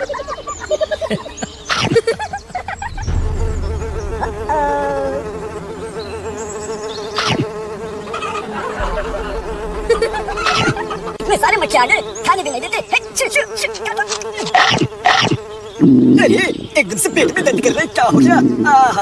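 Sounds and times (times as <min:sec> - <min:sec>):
houseflies buzzing: 0:00.0 - 0:19.0.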